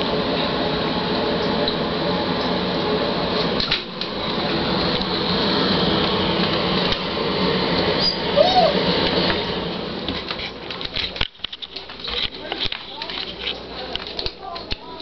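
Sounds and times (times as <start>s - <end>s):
appliance mechanical hum: 0.0s - 15.0s
puppy whining: 8.0s - 8.8s.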